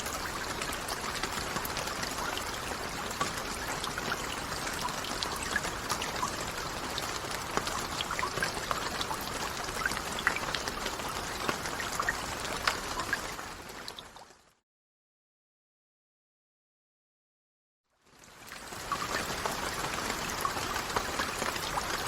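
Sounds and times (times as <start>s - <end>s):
steady rain with ticking drops: 0.0s - 14.6s, 17.9s - 22.0s.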